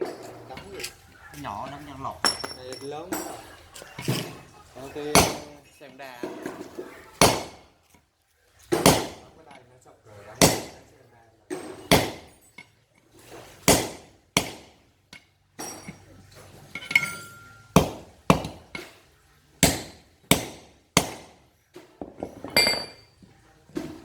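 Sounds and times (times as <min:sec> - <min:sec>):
metal clinking: 0:00.0 - 0:08.0, 0:14.4 - 0:19.0, 0:22.0 - 0:23.3
hammer striking steel: 0:05.0 - 0:07.7, 0:08.8 - 0:09.4, 0:10.4 - 0:10.9, 0:11.5 - 0:12.7, 0:13.6 - 0:14.8, 0:16.7 - 0:19.0, 0:19.6 - 0:21.5.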